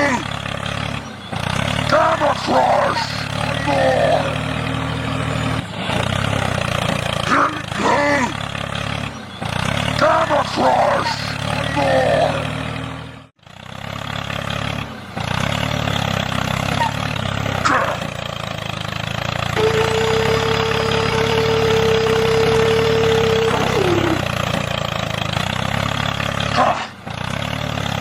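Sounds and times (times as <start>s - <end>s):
engine running steadily: 17.2s - 27.2s
held tone sliding down: 19.6s - 24.4s
short pitch sweeps: 19.6s - 24.4s.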